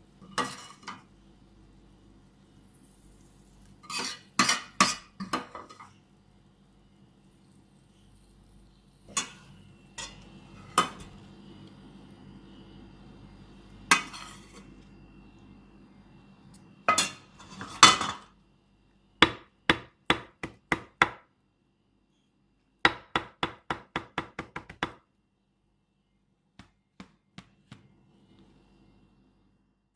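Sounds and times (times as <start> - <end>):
utensils clinking against dishes: 3.8 - 5.9, 9.1 - 11.2, 16.9 - 18.3.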